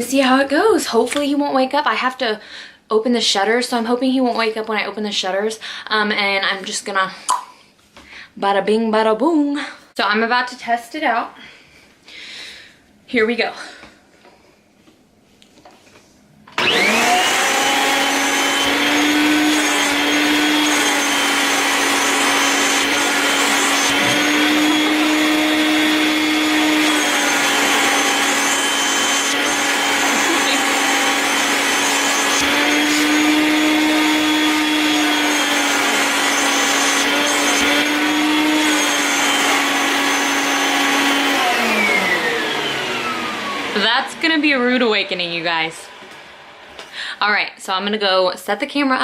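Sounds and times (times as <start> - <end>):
vacuum cleaner running: 16.5 - 46.8.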